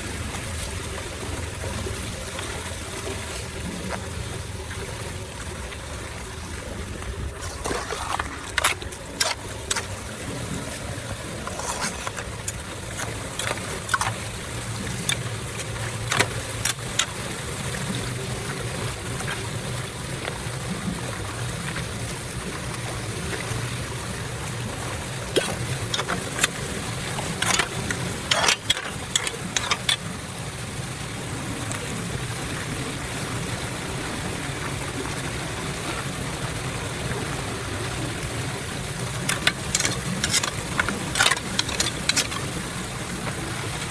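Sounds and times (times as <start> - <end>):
water running into storm drain: 0.0 - 43.9
sharp clicks and knocks: 11.4 - 17.2, 25.3 - 30.1, 39.3 - 42.5.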